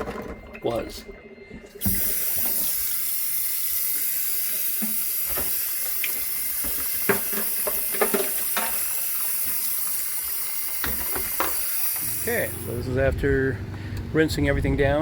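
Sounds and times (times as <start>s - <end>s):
hose water spraying: 1.8s - 13.0s.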